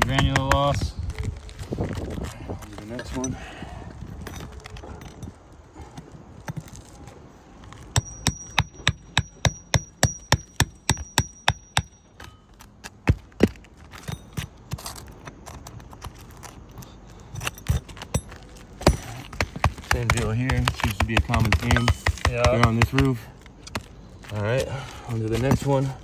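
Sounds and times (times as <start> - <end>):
hammer tapping metal: 8.0 - 12.5, 17.5 - 23.1
heavier hammer blows: 17.4 - 23.2.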